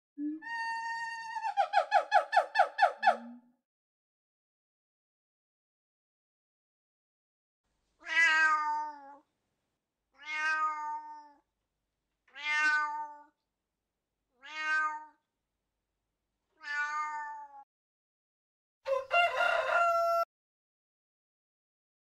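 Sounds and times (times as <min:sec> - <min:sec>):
cat meowing: 0:08.0 - 0:09.2, 0:10.2 - 0:11.4, 0:12.3 - 0:13.4, 0:14.4 - 0:15.2, 0:16.6 - 0:17.6
rooster crowing: 0:18.9 - 0:20.3.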